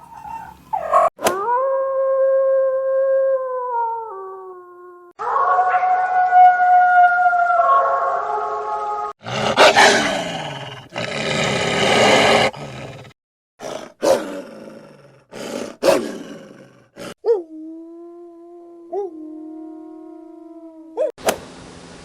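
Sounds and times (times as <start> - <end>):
harsh rasping animal calls: 0.0 - 1.1.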